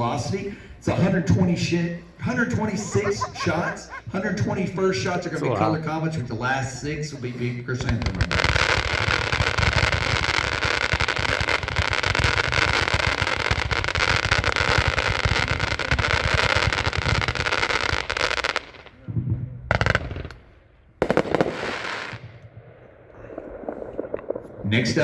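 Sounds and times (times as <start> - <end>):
fireworks cake firing shots: 7.8 - 24.5.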